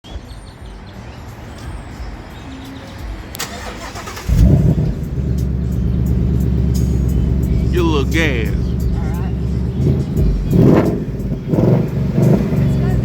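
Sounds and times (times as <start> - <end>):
engine starter noise: 3.4 - 4.5
car engine revving and idling: 4.0 - 7.7, 8.6 - 13.0.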